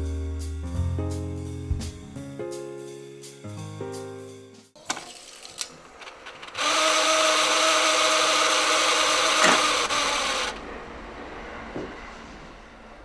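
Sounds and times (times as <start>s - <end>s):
tape deck motor whir: 4.8s - 10.7s.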